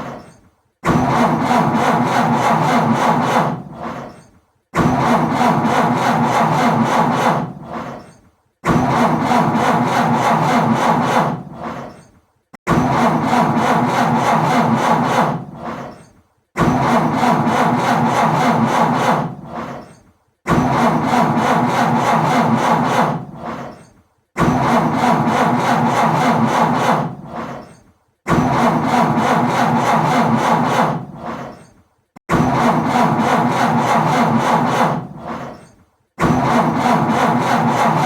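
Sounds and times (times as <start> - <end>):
car engine cranking: 12.9 - 38.0.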